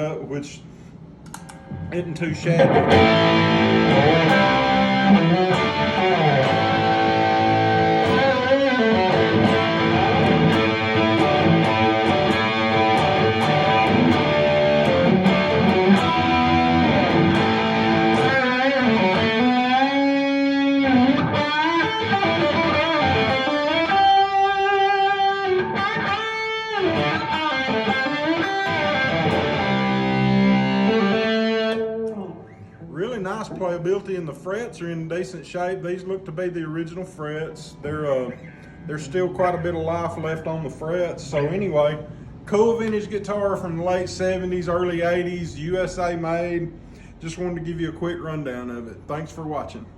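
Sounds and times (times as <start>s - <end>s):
electric guitar through amp: 1.3s - 32.9s.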